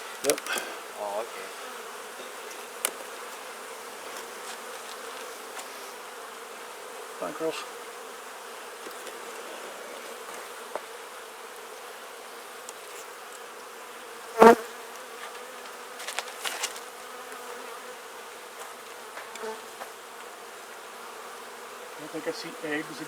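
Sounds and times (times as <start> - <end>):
bee colony humming: 0.0 - 23.0.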